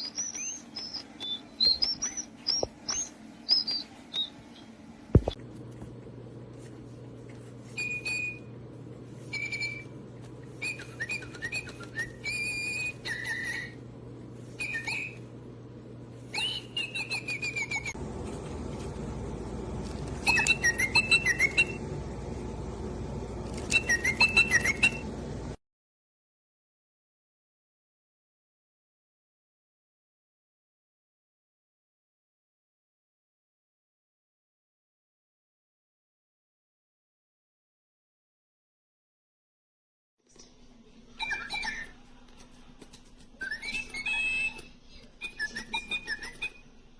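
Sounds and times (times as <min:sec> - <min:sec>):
toy bird electronic whistling: 0:00.0 - 0:04.7, 0:07.7 - 0:08.5, 0:09.2 - 0:13.8, 0:14.5 - 0:15.3, 0:16.3 - 0:18.0, 0:20.2 - 0:21.8, 0:23.5 - 0:25.1, 0:43.4 - 0:46.7.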